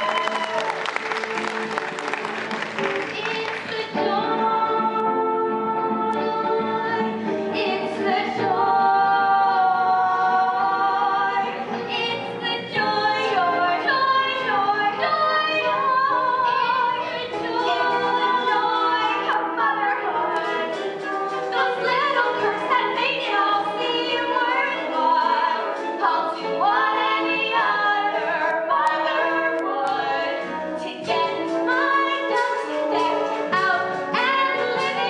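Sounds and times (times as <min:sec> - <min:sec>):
crackling applause: 0:00.0 - 0:03.8
musical accompaniment: 0:00.0 - 0:35.0
several voices singing: 0:03.0 - 0:35.0.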